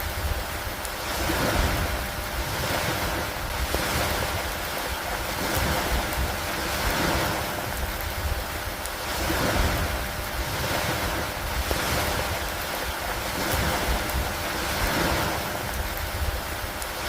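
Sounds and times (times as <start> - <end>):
rain: 0.0 - 17.0
wind: 0.0 - 17.0.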